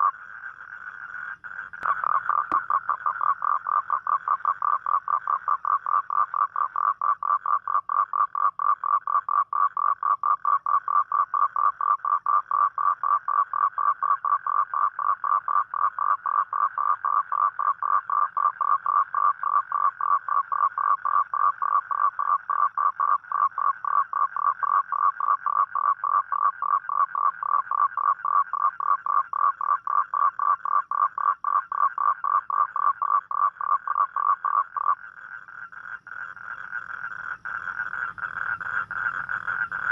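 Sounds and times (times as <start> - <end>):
toad trilling: 0.0 - 39.9.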